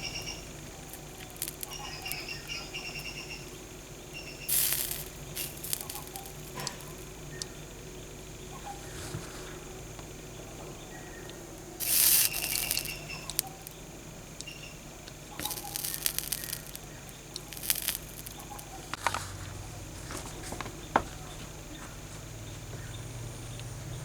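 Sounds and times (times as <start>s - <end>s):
rough scratchy noise: 0.0s - 3.1s, 4.5s - 7.2s, 11.6s - 13.8s, 15.3s - 20.5s.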